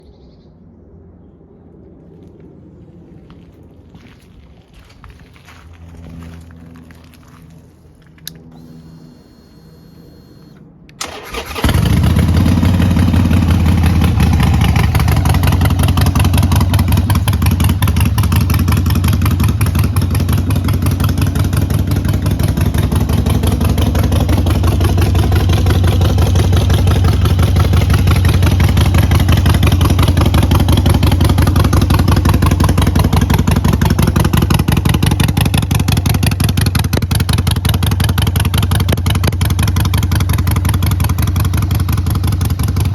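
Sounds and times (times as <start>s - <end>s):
motorcycle engine starting and idling: 6.2s - 42.9s
faint high whine: 7.3s - 11.0s.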